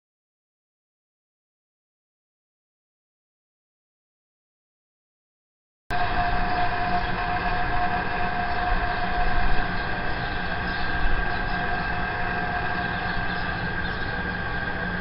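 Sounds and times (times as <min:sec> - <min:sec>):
boiler droning: 0:05.9 - 0:15.0.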